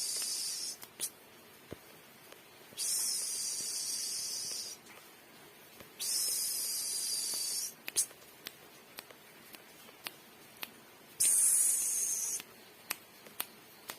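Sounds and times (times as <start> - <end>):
hissing spray bursts: 11.2 - 12.4.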